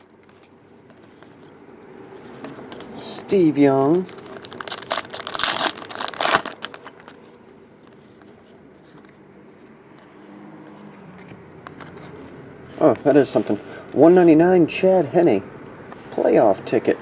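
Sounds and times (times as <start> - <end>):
cards rustling: 0.0 - 14.1
foil wrapper crinkling and tearing: 3.9 - 7.2.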